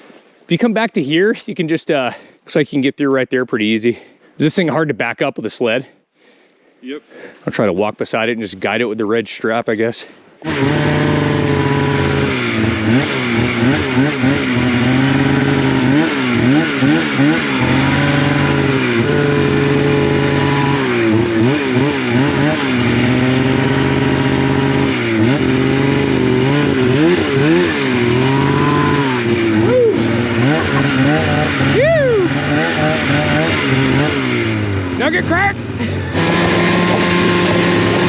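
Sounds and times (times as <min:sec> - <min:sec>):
low steady drone: 0:10.4 - 0:38.0
snowmobile engine revving: 0:10.4 - 0:38.0.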